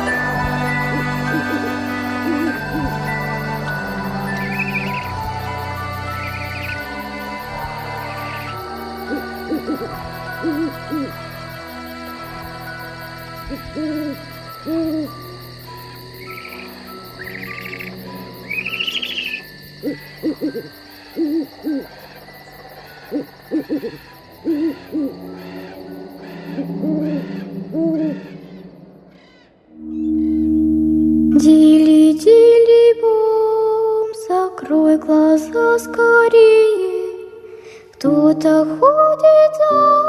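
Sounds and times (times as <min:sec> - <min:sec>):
low synthesized drone: 0:00.0 - 0:19.4, 0:24.5 - 0:32.3
owls hooting: 0:00.0 - 0:31.5
higher rising calls: 0:00.0 - 0:32.3.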